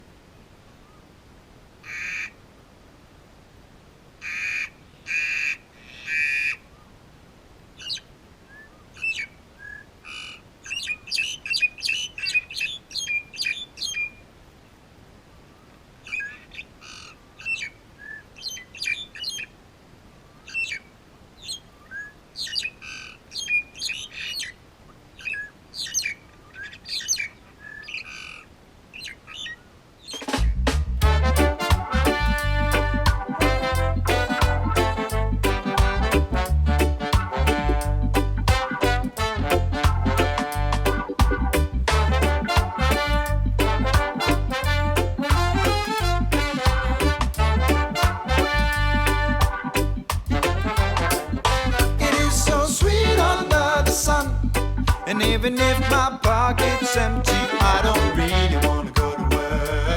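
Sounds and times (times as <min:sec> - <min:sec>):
birds squawking harshly: 0:01.8 - 0:02.4, 0:04.2 - 0:06.7, 0:20.5 - 0:24.6
birds chattering and whistling: 0:07.8 - 0:14.2, 0:16.1 - 0:19.5, 0:20.5 - 0:24.6, 0:25.2 - 0:30.6.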